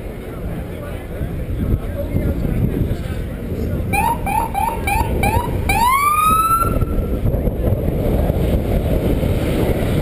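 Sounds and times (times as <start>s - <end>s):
steady low rumble: 0.0s - 10.0s
emergency siren yelp and wail: 3.9s - 7.0s.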